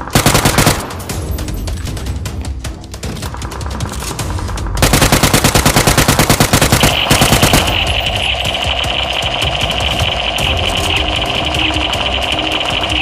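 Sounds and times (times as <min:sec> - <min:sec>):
rapid automatic gunfire: 0:00.0 - 0:01.1, 0:04.8 - 0:13.0.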